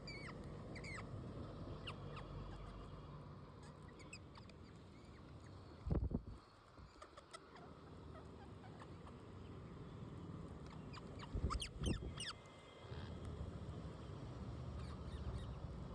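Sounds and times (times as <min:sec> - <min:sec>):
parrots chirping: 0:00.1 - 0:01.1, 0:10.7 - 0:12.4.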